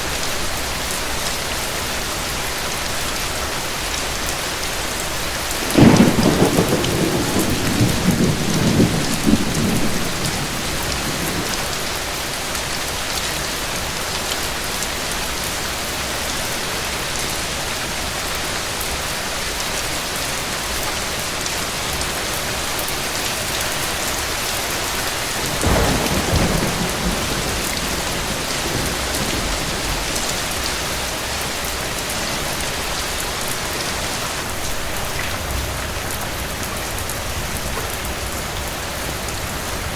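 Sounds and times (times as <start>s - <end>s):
steady rain: 0.0s - 39.9s
thunder rumbling: 5.6s - 12.0s, 25.3s - 39.9s.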